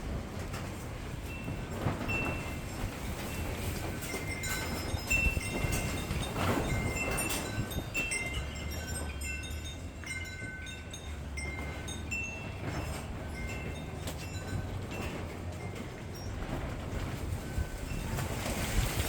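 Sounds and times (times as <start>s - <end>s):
chimes ringing: 3.4s - 16.4s.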